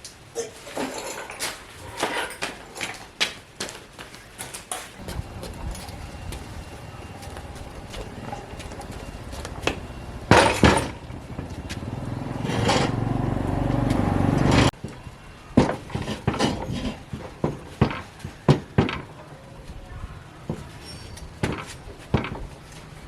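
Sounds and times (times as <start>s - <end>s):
steady whirring noise: 1.6s - 23.0s
hard objects knocking and clattering: 4.4s - 11.5s, 15.6s - 19.2s.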